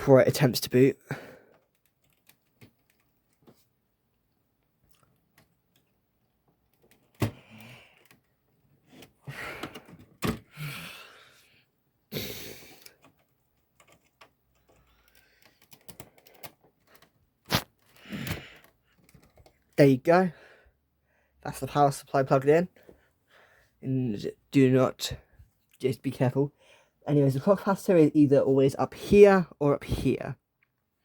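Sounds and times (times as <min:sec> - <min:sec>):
cable rustling: 0:12.9 - 0:19.8.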